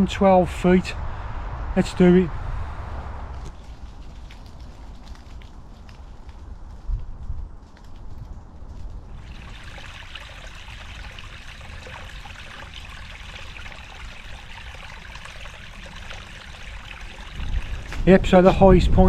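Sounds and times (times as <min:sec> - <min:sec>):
low rumble: 0:00.0 - 0:09.3
water rushing: 0:09.1 - 0:18.4.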